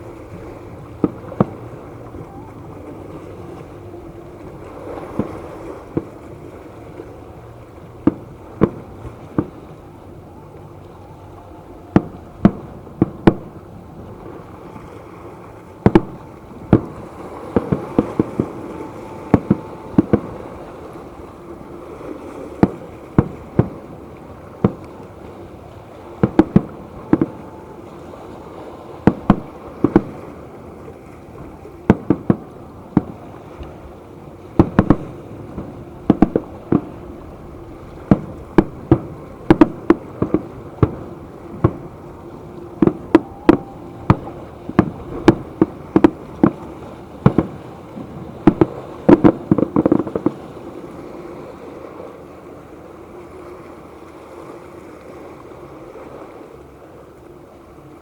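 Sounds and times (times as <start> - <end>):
fireworks bursting with sharp bangs: 0.0 - 4.4, 5.0 - 6.2, 8.0 - 13.7, 15.8 - 21.0, 22.5 - 25.2, 25.8 - 30.6, 31.2 - 50.8
low background noise: 0.0 - 58.0.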